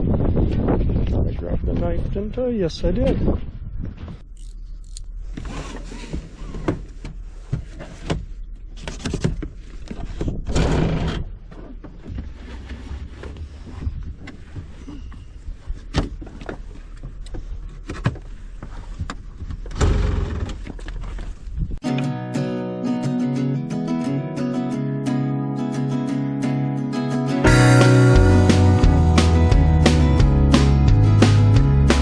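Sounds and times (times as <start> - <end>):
wind rumbling on microphone: 0.0 - 4.3, 8.9 - 21.8
rasping scrape: 4.4 - 6.6.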